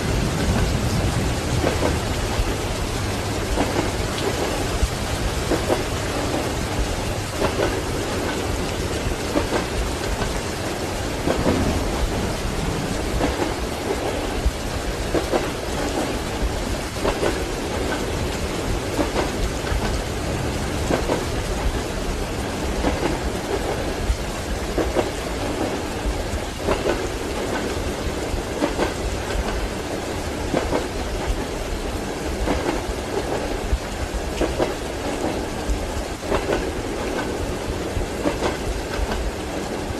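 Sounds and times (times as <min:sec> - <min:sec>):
low rumble of thunder: 0:00.0 - 0:29.6
rain falling: 0:00.0 - 0:39.9
train wheels clacking on rails: 0:00.0 - 0:39.9.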